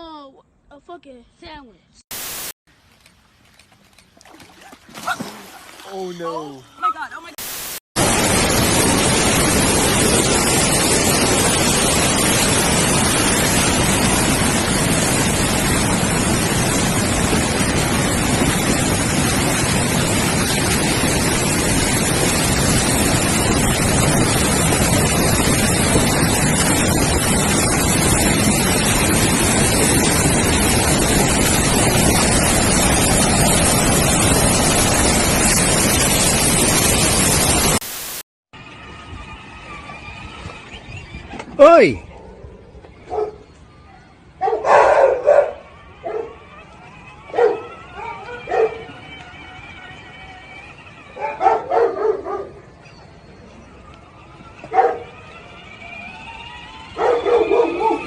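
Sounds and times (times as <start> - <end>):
loud steady rushing noise: 2.1 - 2.5, 7.0 - 39.4.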